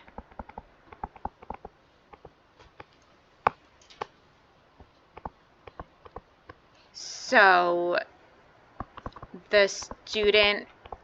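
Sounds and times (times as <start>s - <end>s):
light clicks and taps: 0.0s - 4.2s, 4.8s - 6.8s, 8.8s - 11.0s.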